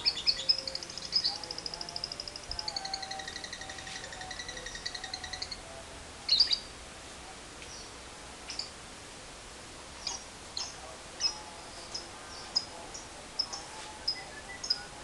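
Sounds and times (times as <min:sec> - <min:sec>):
lovebird chirps: 0:00.0 - 0:05.6, 0:06.3 - 0:06.7, 0:08.5 - 0:08.8, 0:10.0 - 0:15.0.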